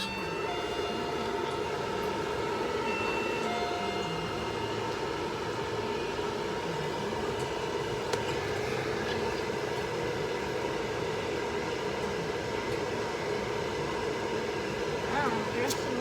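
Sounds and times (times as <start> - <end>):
hair dryer running: 0.0 - 11.4.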